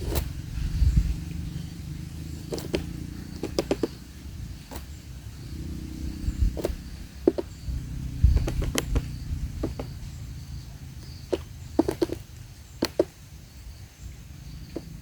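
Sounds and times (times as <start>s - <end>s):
low rumble: 0.2s - 11.7s
woodpecker tapping on wood: 2.2s - 13.6s, 14.6s - 15.0s.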